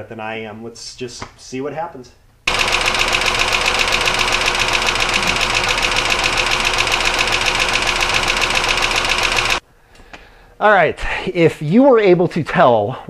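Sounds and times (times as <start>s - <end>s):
car engine running: 2.5s - 9.6s
rapid internal engine knock: 2.5s - 9.6s.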